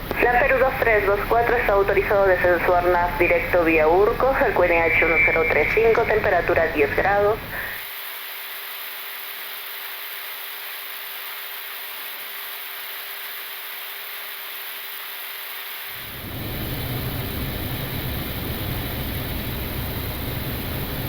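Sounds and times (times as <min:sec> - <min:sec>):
deep aircraft rumble: 0:00.0 - 0:07.7, 0:16.0 - 0:21.0
faint steady hum: 0:00.0 - 0:07.8, 0:15.9 - 0:21.0
airflow hiss: 0:00.1 - 0:07.9, 0:16.0 - 0:21.0.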